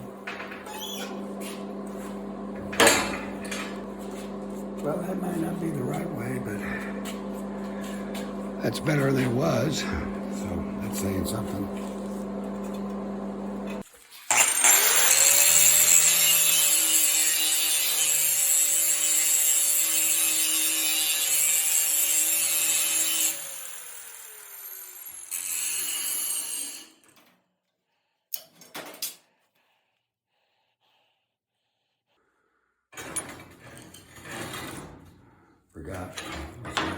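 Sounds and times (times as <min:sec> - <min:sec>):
angle grinder grinding steel: 0:00.0 - 0:27.1.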